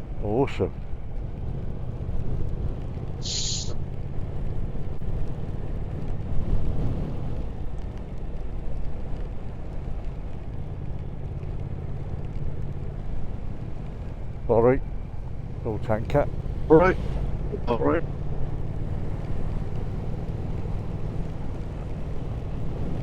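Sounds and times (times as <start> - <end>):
wind noise: 0.9 - 23.0
brief high hiss: 3.2 - 3.8.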